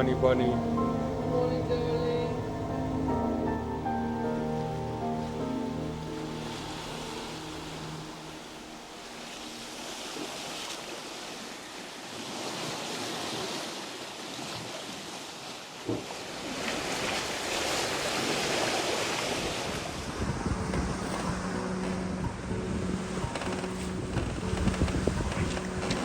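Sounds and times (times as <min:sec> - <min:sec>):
sea water rushing past hulls: 0:00.0 - 0:26.0
wind buffeting microphone: 0:16.8 - 0:26.0.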